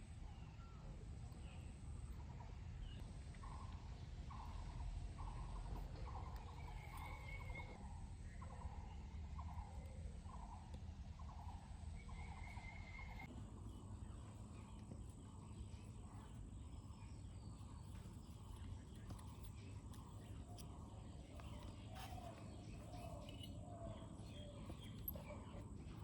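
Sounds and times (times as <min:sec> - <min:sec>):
low background rumble: 0:00.0 - 0:26.0
birds calling: 0:04.3 - 0:26.0.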